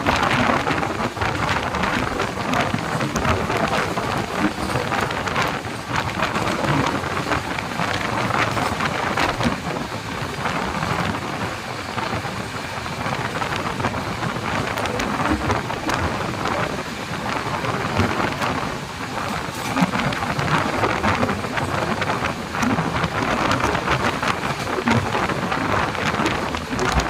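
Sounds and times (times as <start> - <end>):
rapid clicks and clatters: 0.0 - 27.0
train wheels rushing on rails: 0.0 - 27.0.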